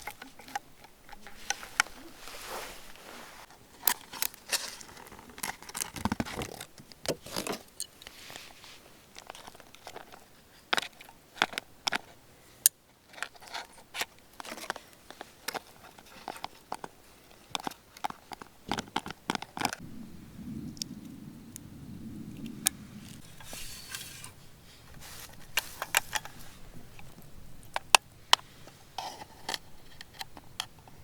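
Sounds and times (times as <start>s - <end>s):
camping gear clicks and rustles: 0.0s - 19.9s, 22.4s - 31.0s
low steady rumble: 19.8s - 28.4s.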